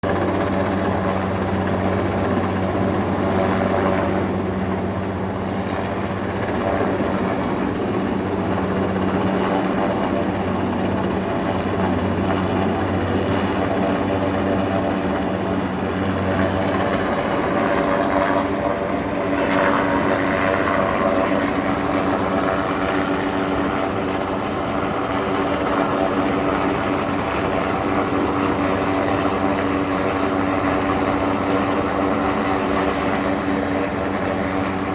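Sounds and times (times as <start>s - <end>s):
helicopter engine and rotor drone: 0.0s - 34.9s.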